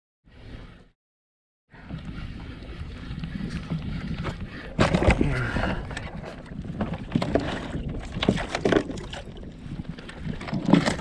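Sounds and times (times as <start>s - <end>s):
water splashing against hull: 1.8s - 11.0s.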